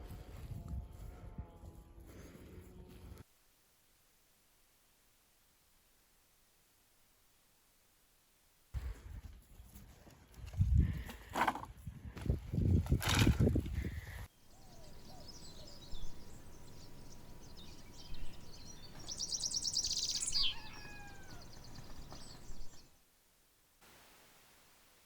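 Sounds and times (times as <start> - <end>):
birds chirping and calling: 13.8 - 22.9
bird high trill: 14.5 - 22.8.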